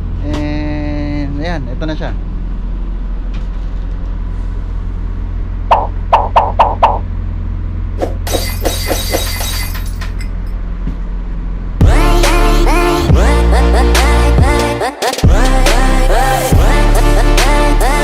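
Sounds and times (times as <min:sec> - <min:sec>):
bus engine idling: 0:00.0 - 0:08.2, 0:09.3 - 0:14.9.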